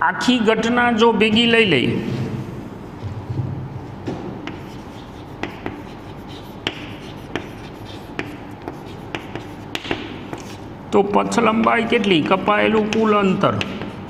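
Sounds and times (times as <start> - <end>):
chalk scratching: 4.4 - 10.7, 12.0 - 14.0
chalk tapping on blackboard: 4.4 - 10.7, 12.0 - 14.0.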